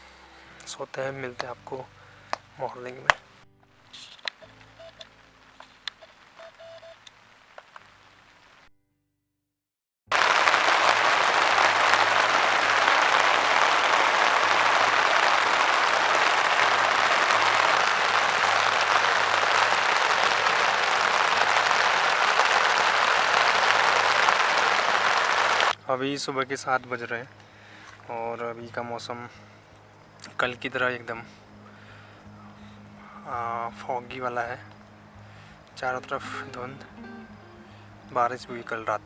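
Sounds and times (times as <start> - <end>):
heavy rain falling: 4.2 - 8.7, 10.1 - 25.8.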